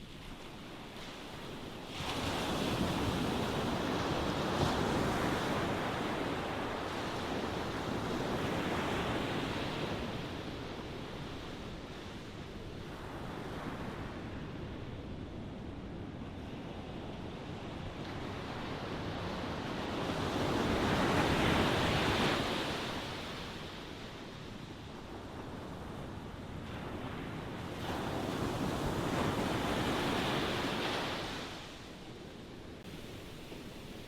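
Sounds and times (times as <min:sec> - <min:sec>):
ocean waves breaking on shore: 0:00.0 - 0:34.0.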